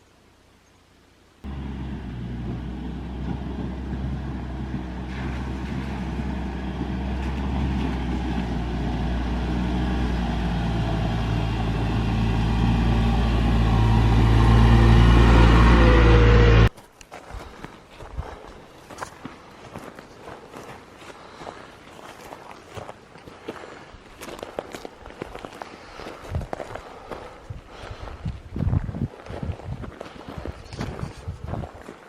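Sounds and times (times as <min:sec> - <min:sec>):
vehicle engine humming: 0:01.4 - 0:16.7.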